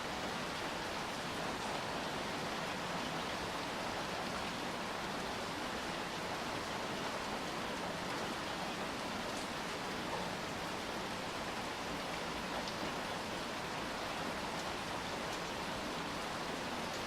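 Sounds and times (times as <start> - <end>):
steady rain hiss: 0.0 - 17.0
faint raindrop ticks: 7.3 - 13.5, 14.4 - 17.0.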